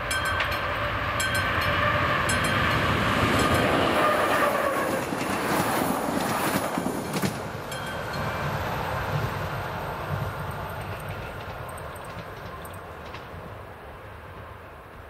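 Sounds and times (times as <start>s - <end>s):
crossing warning bell ringing: 0.0s - 5.6s, 7.6s - 13.2s
electric train passing: 0.0s - 15.0s
wheels rumbling and clacking: 0.1s - 9.4s, 10.1s - 13.6s.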